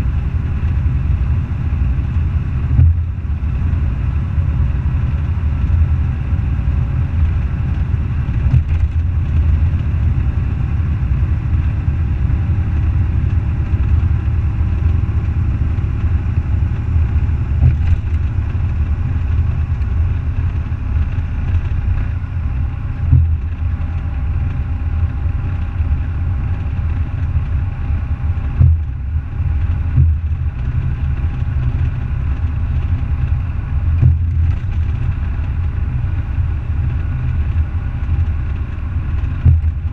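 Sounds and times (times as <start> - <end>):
diesel truck engine rumbling: 0.0 - 39.9
knocks and rattles: 7.2 - 10.2, 14.8 - 22.2, 22.9 - 25.9, 28.3 - 39.9.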